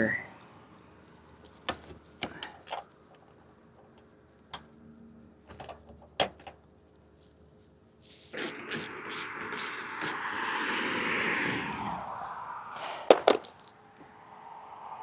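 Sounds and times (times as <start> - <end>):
rushing noise: 8.4 - 15.0.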